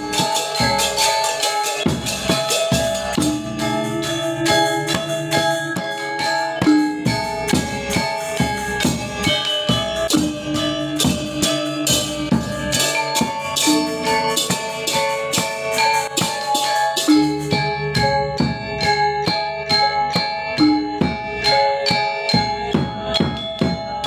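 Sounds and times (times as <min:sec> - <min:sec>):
gamelan ensemble playing: 0:00.0 - 0:24.0.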